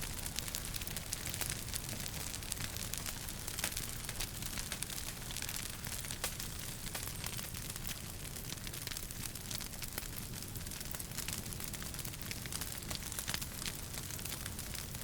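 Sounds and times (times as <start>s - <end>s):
low rumble of burning fire: 0.0s - 15.0s
wood fire crackling and popping: 0.0s - 15.0s.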